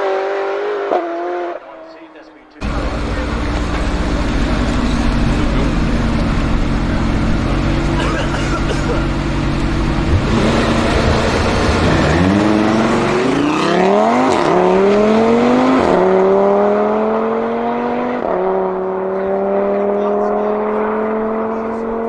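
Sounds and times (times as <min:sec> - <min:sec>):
sports car engine accelerating: 0:00.0 - 0:22.0.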